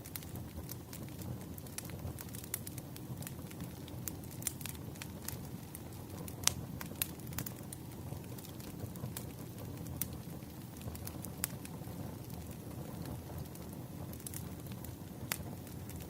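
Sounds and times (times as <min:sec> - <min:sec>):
fire pops and snaps: 0:00.0 - 0:16.0
wood fire crackling: 0:00.0 - 0:16.0.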